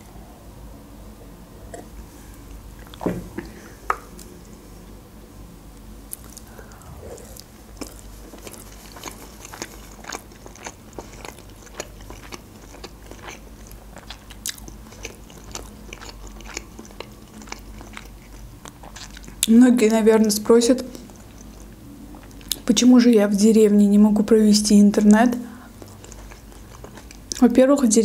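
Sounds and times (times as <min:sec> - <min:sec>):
chewing food: 0:06.1 - 0:22.7, 0:25.7 - 0:27.6.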